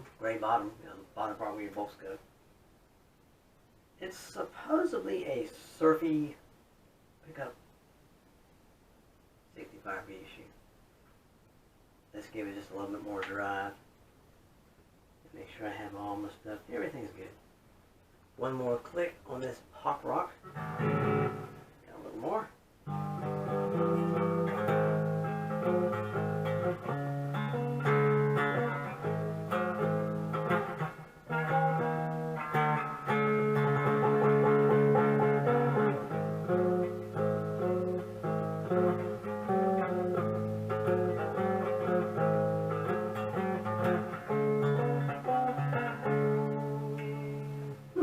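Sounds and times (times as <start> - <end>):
overdriven electric guitar: 20.4 - 21.8, 22.8 - 48.0.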